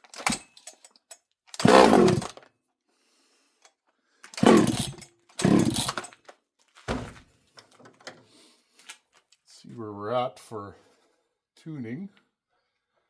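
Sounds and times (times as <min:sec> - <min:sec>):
chainsaw starter rope pulled: 0:00.0 - 0:00.8, 0:01.5 - 0:02.5, 0:04.2 - 0:06.3
chainsaw engine turning over: 0:01.6 - 0:02.4, 0:04.4 - 0:06.1.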